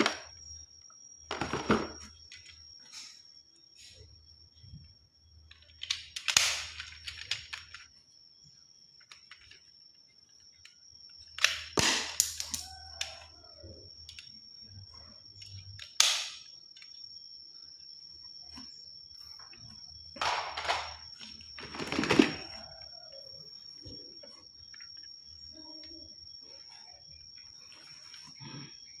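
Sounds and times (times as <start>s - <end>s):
toy guns clicking and rattling: 5.5s - 7.9s, 11.3s - 13.2s.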